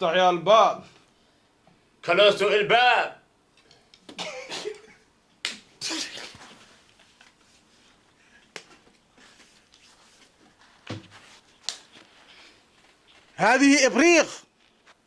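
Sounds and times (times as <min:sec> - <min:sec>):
soft rustling: 0:06.1 - 0:13.4.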